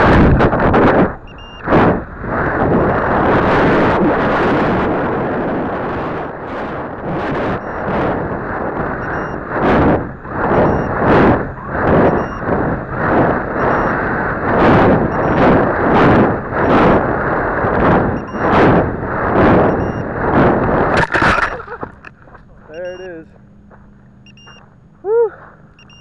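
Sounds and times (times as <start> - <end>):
wind buffeting a camera: 0.0 - 26.0
short high electronic beep: 22.7 - 23.2, 24.3 - 24.6, 25.8 - 26.0.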